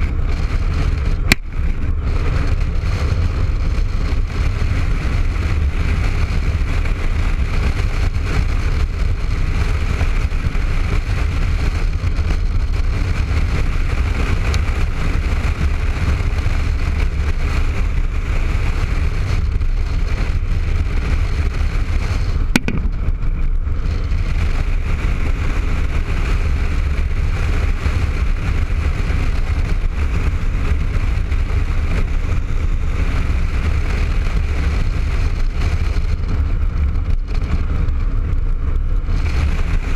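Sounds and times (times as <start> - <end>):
motorcycle engine running: 0.0 - 39.9
road noise: 0.0 - 39.9
wind rumble: 0.0 - 39.9
sharp click: 22.6 - 23.0.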